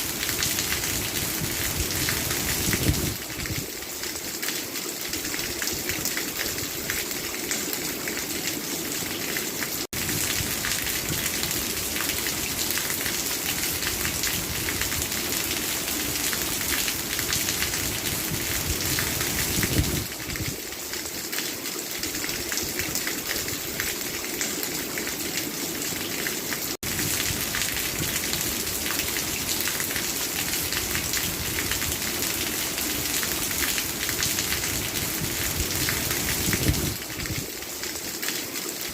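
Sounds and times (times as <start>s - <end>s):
rain hissing on a surface: 0.0s - 38.9s.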